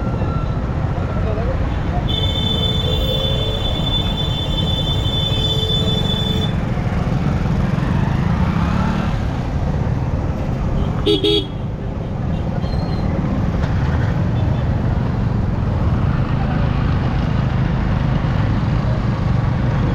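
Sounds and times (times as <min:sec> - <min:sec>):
vehicle horn toots: 0:02.1 - 0:06.6, 0:10.8 - 0:11.6.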